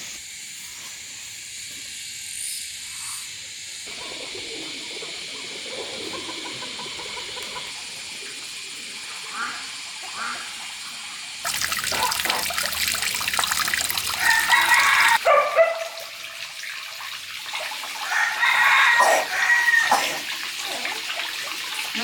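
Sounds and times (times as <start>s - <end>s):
rooster crowing: 14.0s - 15.8s, 18.0s - 20.2s.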